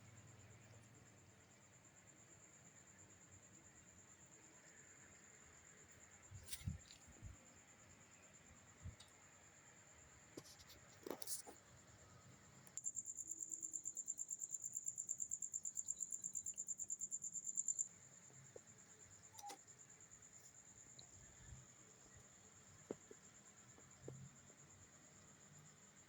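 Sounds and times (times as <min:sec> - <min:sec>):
cricket chirping: 0:00.0 - 0:26.0
faint clicks: 0:19.3 - 0:19.6.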